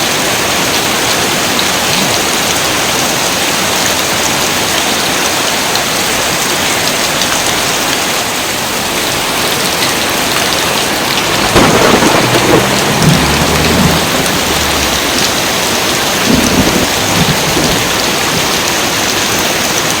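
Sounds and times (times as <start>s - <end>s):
heavy rain: 0.0s - 20.0s
thunder rumbling: 10.6s - 19.4s.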